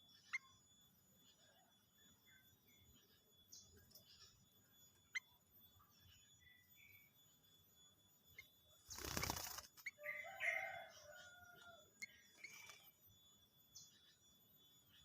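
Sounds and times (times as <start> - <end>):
bird wings fluttering: 8.9 - 9.9.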